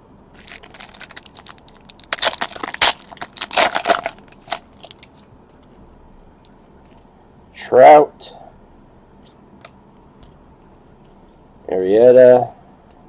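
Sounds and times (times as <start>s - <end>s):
wrapper tearing and crinkling: 0.4s - 5.2s.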